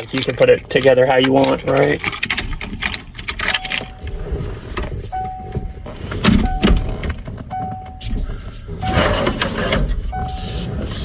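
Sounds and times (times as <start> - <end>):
electronic beep: 10.1 - 10.6.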